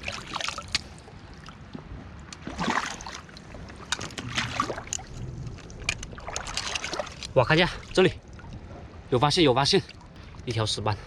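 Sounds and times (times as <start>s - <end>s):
seawater splashing: 0.0s - 1.7s, 2.3s - 10.4s
low rumble: 3.4s - 9.4s.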